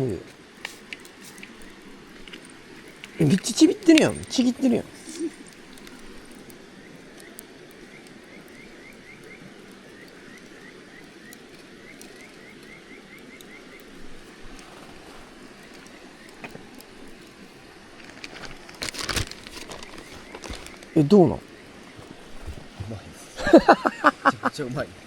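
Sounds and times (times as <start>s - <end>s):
steady rush of noise: 0.0s - 25.0s
faint clicks: 0.2s - 22.8s.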